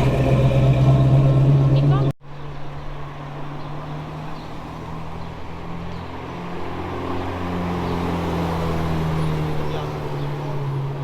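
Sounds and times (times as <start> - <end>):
car engine running: 0.0 - 2.2.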